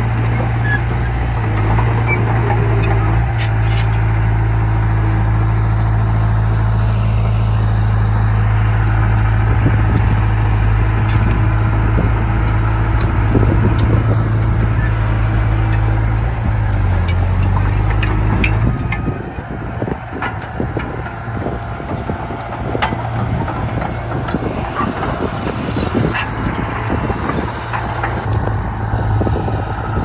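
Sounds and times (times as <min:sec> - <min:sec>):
bulldozer diesel engine running: 0:00.0 - 0:30.0
light metal clanks: 0:11.0 - 0:28.4.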